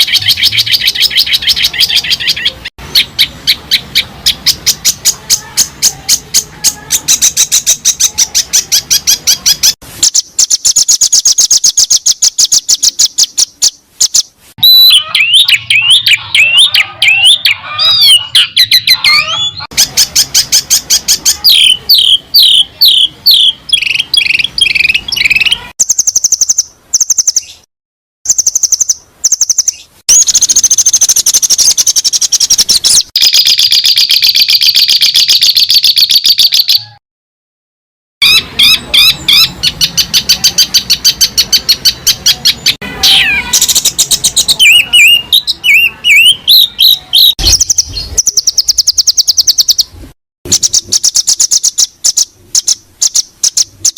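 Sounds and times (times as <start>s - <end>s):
bird trills: 0.0s - 27.7s, 28.3s - 37.0s, 38.2s - 49.9s, 50.5s - 53.9s
whistled bird phrase: 14.6s - 27.7s, 38.2s - 49.9s.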